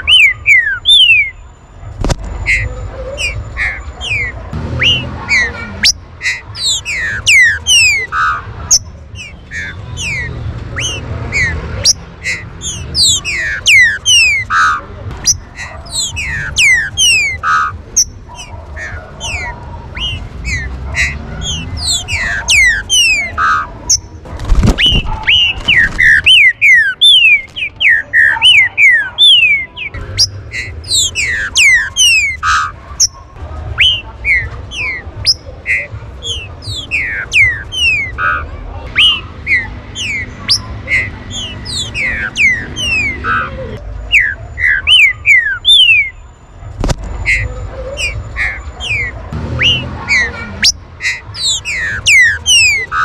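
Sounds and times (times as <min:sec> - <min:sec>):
birds whistling and singing: 0:00.0 - 0:53.0.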